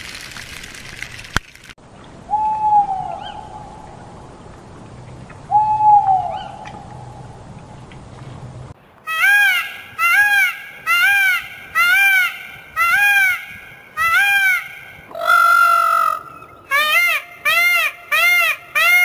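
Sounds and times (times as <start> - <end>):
peacock calling: 9.0 - 19.0.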